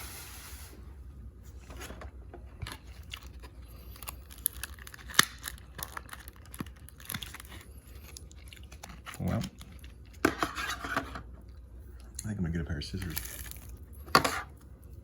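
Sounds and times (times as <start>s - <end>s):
wax paper wrapper crinkling: 2.5s - 10.8s, 12.8s - 14.6s.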